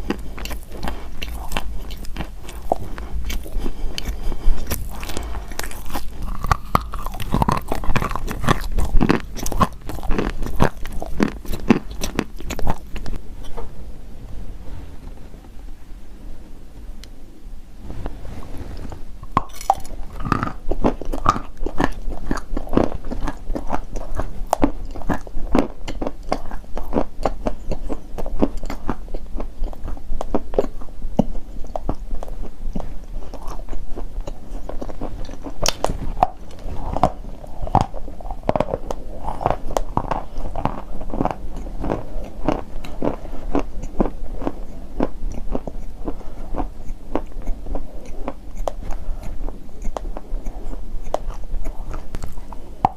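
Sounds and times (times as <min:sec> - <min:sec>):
person crunching chalk: 0:00.0 - 0:13.2.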